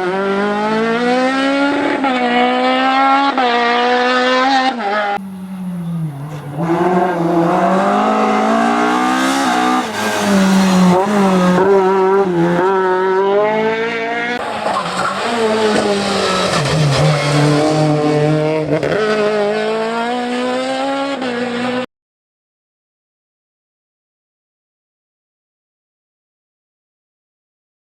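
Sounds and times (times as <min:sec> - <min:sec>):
race car engine at full throttle: 0:00.0 - 0:21.9.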